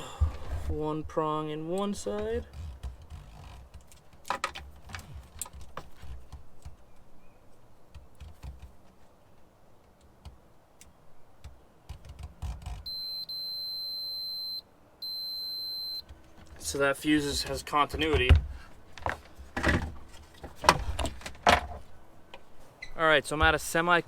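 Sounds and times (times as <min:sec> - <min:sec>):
multimeter high-pitched beep: 0:12.9 - 0:16.0.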